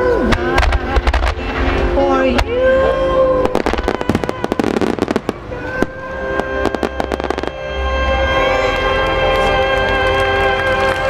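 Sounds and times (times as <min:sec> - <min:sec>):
music soundtrack: 0:00.0 - 0:11.0
firework bangs and crackles: 0:00.2 - 0:02.7, 0:03.4 - 0:08.0.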